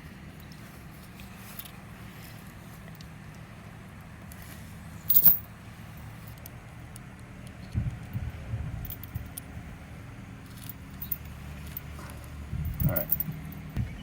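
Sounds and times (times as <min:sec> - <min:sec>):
low thumps and rumbles: 0:07.7 - 0:09.8, 0:10.6 - 0:14.0.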